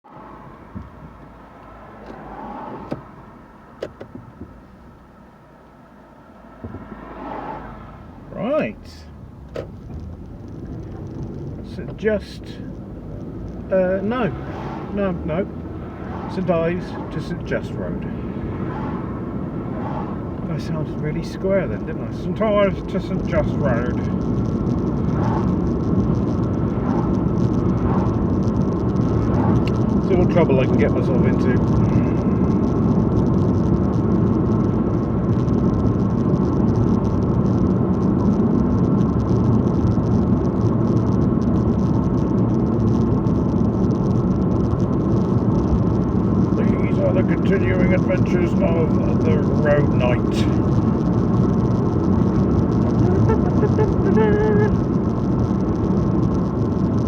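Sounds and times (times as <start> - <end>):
engine and road rumble: 0.0 - 57.0.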